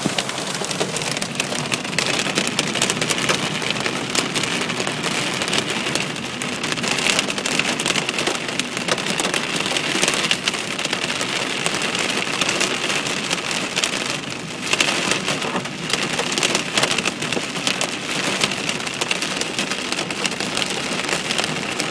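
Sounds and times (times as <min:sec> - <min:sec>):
hiss of heavy precipitation: 0:00.0 - 0:17.3
hailstones clattering: 0:00.0 - 0:21.9.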